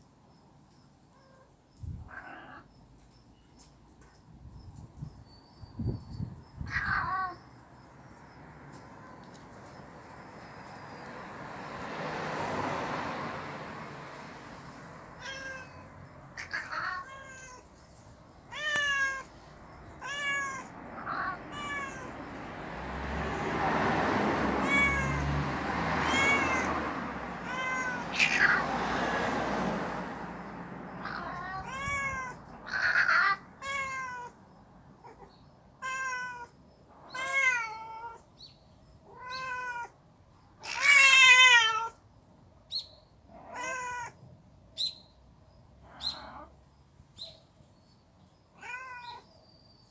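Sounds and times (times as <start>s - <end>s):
cats yowling: 1.2s - 2.7s, 6.6s - 7.4s, 15.2s - 17.7s, 18.5s - 22.4s, 23.3s - 28.8s, 30.9s - 34.4s, 35.0s - 38.2s, 39.0s - 40.0s, 40.6s - 42.0s, 43.3s - 44.2s, 45.8s - 46.5s, 48.6s - 49.3s.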